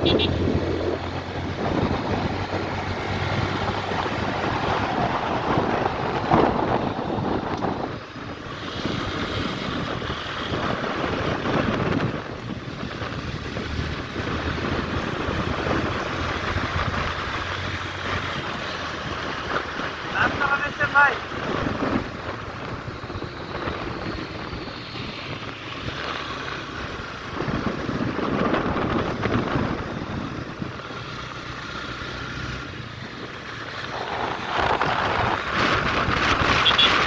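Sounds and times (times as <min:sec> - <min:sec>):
motorcycle engine running: 0:00.0 - 0:03.4, 0:32.9 - 0:37.0
wind buffeting microphone: 0:00.0 - 0:37.0.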